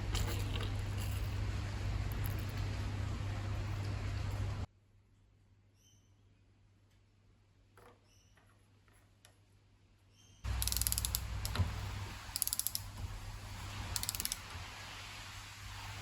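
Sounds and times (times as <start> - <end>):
hand ratchet clicking: 10.5 - 11.7, 12.3 - 12.9, 14.0 - 14.4.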